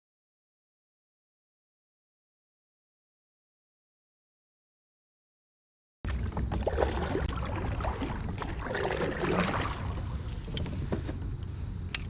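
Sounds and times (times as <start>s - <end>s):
water against kayak hull: 6.1s - 12.0s.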